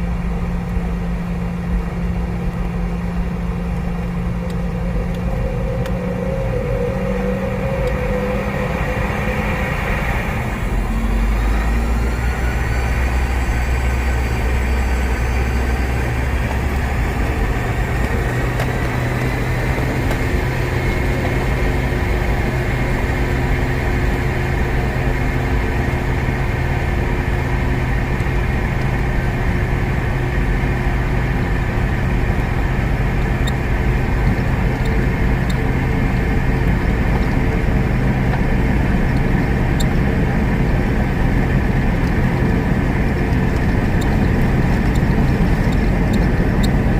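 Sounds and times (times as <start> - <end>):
faint rising whine: 0.0 - 46.9
jet engine cabin noise: 0.0 - 46.9.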